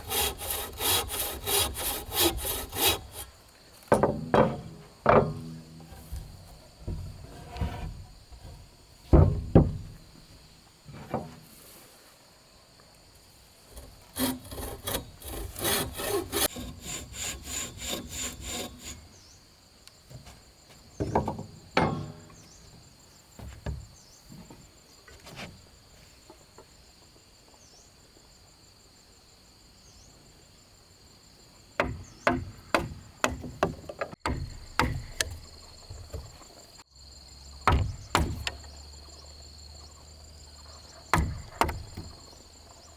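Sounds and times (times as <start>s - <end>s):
wood being sawn by hand: 0.0s - 8.5s, 13.7s - 19.2s, 31.8s - 36.6s, 37.6s - 38.8s, 40.7s - 42.8s
knocks of wood being handled: 0.0s - 11.6s, 13.7s - 19.0s, 20.0s - 25.6s, 31.8s - 36.8s, 37.6s - 39.3s, 40.6s - 42.9s.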